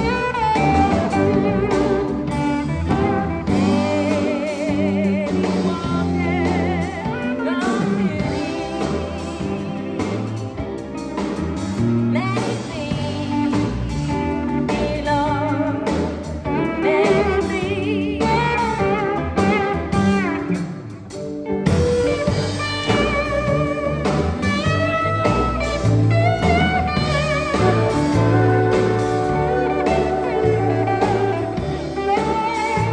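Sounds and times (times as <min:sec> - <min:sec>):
person singing: 0:00.0 - 0:10.7, 0:12.1 - 0:20.5
bass line: 0:00.0 - 0:32.9
steel guitar sliding notes: 0:16.6 - 0:32.9.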